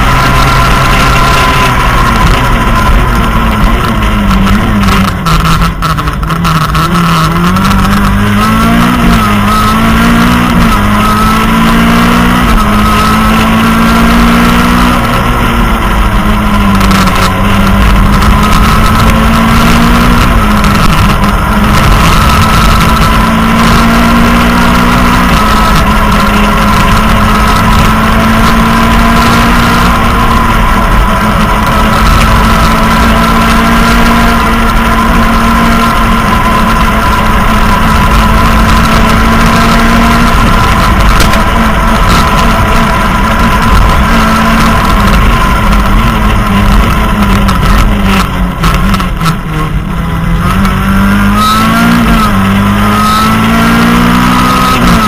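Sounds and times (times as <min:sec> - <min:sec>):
rally car engine revving: 0:00.0 - 0:55.0
tyre and road noise: 0:00.0 - 0:55.0.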